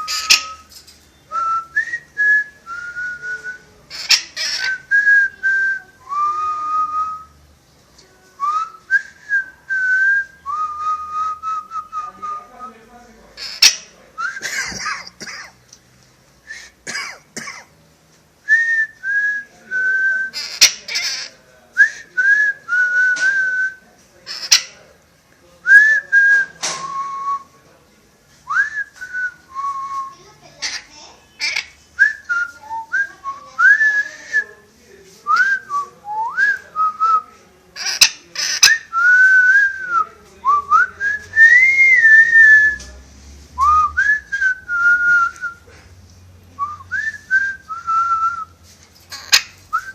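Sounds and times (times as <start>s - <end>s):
parrot harsh calls: 0.0s - 0.7s, 3.9s - 4.8s, 13.4s - 13.9s, 20.3s - 21.4s, 24.3s - 24.7s, 30.5s - 31.8s, 37.8s - 38.9s, 49.1s - 49.6s
parrot whistling: 0.0s - 0.7s, 37.8s - 39.3s.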